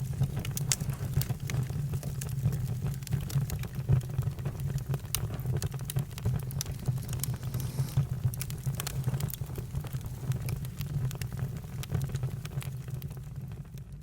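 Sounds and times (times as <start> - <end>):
campfire pops and snaps: 0.0 - 13.3
low rumble of flames: 0.0 - 14.0
fire hiss: 6.0 - 10.5.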